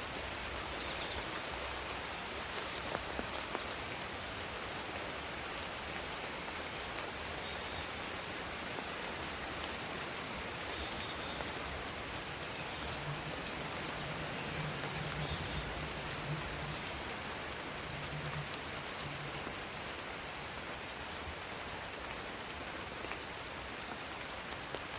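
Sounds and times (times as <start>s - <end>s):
steady rain falling: 0.0s - 24.9s
low hum: 11.7s - 19.8s.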